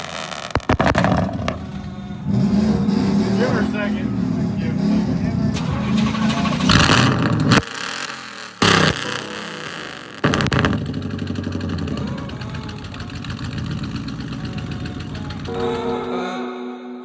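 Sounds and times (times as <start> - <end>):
truck engine revving and idling: 0.0 - 16.1.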